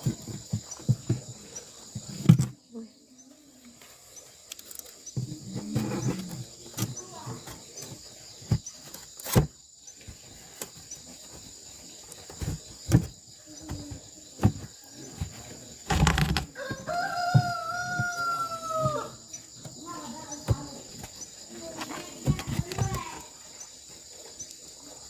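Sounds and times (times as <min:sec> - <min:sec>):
rooster crowing: 0:16.5 - 0:19.3.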